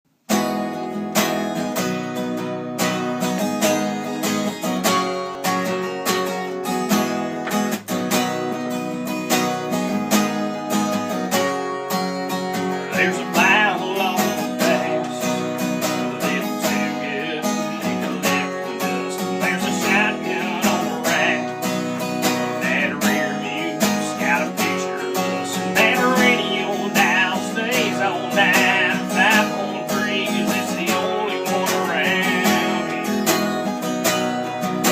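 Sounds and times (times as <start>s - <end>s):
acoustic guitar strumming: 0.2s - 34.9s
person singing: 12.6s - 33.7s.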